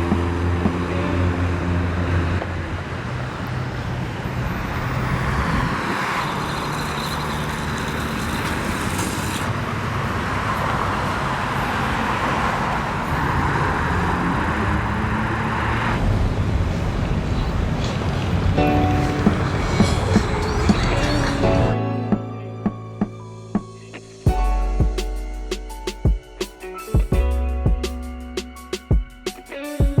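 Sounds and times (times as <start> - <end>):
car engines running: 0.0 - 21.7
tyres passing on road: 0.0 - 30.0.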